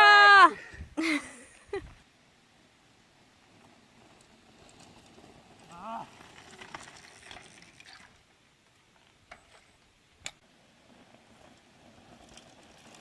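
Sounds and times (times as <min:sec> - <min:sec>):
bike tyres crackling over dirt: 0:02.0 - 0:13.0.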